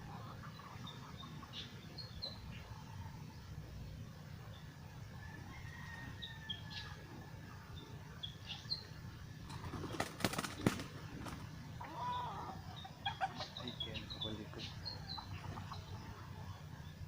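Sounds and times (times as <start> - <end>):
birds chirping: 0.0 - 17.0
low arched bird call: 8.2 - 16.9
wings flapping: 9.5 - 11.6.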